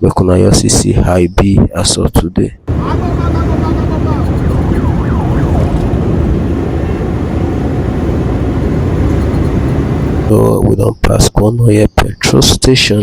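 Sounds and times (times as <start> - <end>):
vehicle road and wind noise: 2.6 - 10.8
faint rising and falling tones: 2.7 - 10.3.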